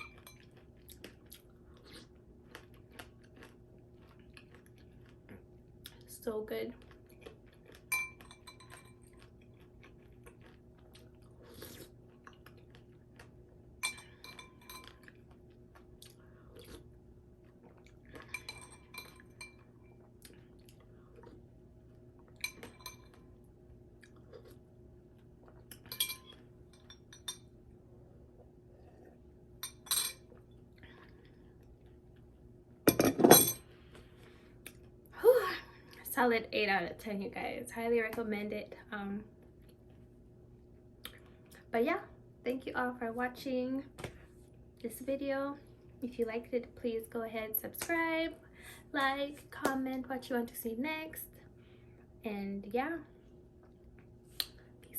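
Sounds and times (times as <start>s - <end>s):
quiet chewing: 0.1s - 6.1s, 6.7s - 27.4s, 41.0s - 41.7s
metal spoon clinking against bowl: 13.8s - 14.9s, 18.2s - 19.6s, 25.8s - 27.4s, 29.6s - 30.2s.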